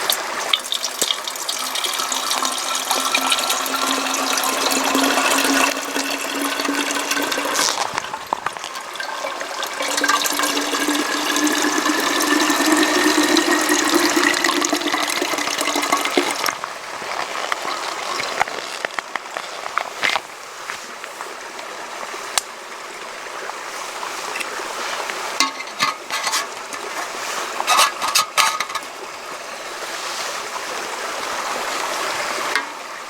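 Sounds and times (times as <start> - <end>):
water pouring into container: 0.0 - 20.2, 24.2 - 29.6
water trickling: 0.0 - 33.0
small knocks: 25.4 - 29.0.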